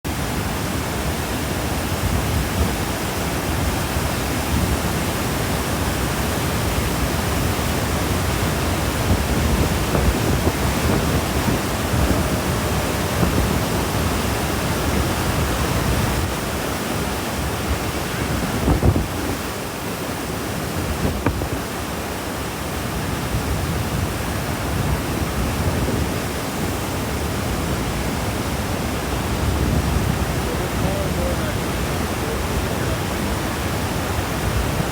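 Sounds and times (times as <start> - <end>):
waterfall rushing: 0.1 - 34.9
wind buffeting microphone: 0.6 - 34.9.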